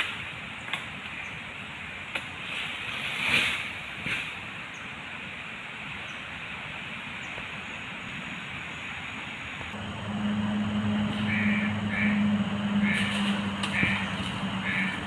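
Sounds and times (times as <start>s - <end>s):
steady rushing noise: 1.6s - 15.0s
low engine hum: 9.5s - 15.0s.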